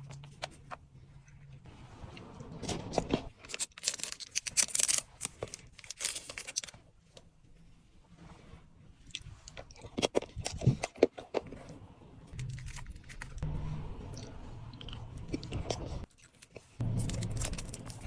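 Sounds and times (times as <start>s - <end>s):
chewing: 14.2s - 18.0s.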